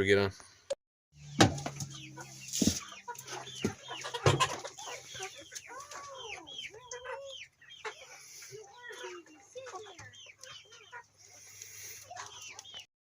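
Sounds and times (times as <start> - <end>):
chickens clucking and squawking: 1.2 - 12.9.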